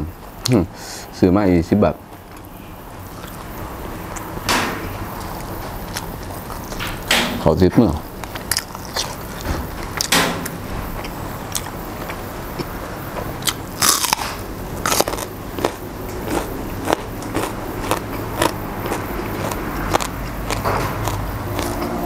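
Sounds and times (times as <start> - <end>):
person chewing raw vegetables: 3.2 - 4.4, 5.2 - 6.8, 8.2 - 10.1, 10.9 - 22.0.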